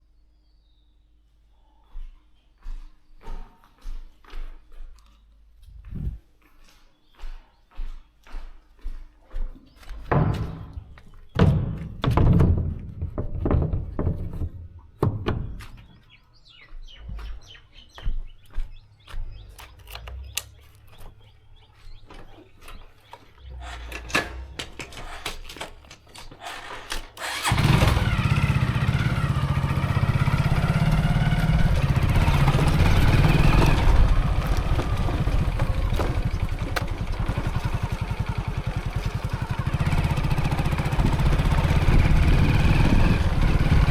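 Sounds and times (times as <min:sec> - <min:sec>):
motorcycle engine starting and running: 0:19.0 - 0:43.9
knocks and clicks of handling: 0:22.0 - 0:27.2.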